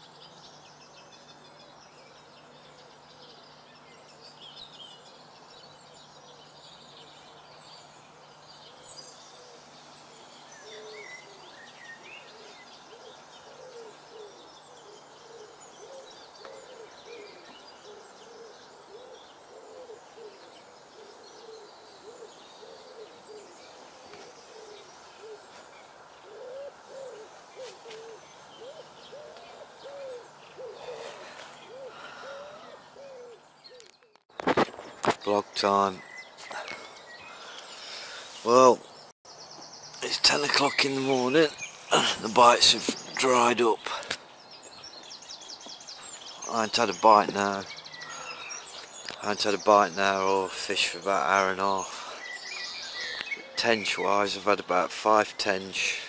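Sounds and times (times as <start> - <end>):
small birds chirping: 0.0 - 56.0
bird hooting: 8.6 - 34.2, 45.7 - 49.3.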